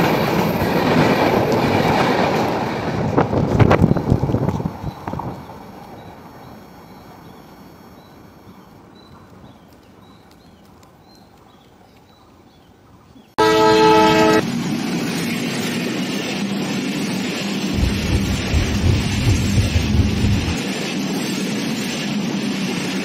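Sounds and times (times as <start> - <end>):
train coaches rumbling past: 0.0 - 9.5, 13.4 - 23.0
train horn blast: 13.4 - 14.5.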